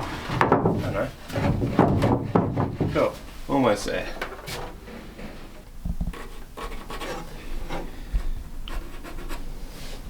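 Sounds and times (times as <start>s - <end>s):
dull wooden knocks: 0.0s - 3.2s
wooden boards scraping together: 0.0s - 3.2s.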